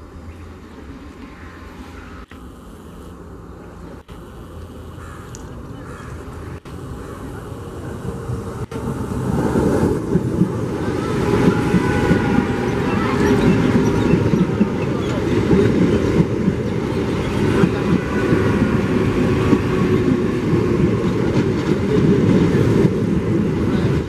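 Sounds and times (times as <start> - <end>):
train rumble and wheel clatter: 0.0 - 2.3, 5.3 - 24.0
high wheel squeals: 10.8 - 15.5.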